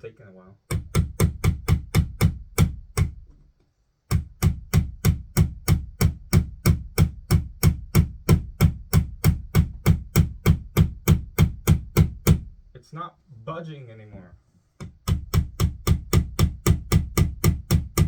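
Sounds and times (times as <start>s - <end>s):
hammer blows on fastener: 0.7s - 3.4s, 4.1s - 12.6s, 14.8s - 18.0s.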